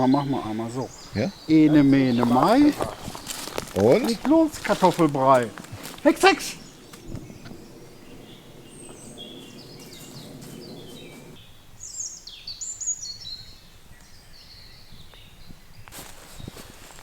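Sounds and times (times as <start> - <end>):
small birds chirping: 0.0 - 17.0
short rustle: 0.3 - 11.4, 15.9 - 17.0.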